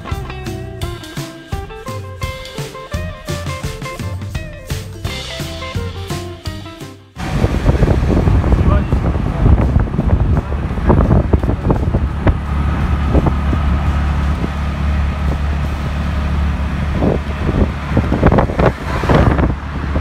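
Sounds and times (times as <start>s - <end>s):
vehicle engine low rumble: 7.2s - 20.0s.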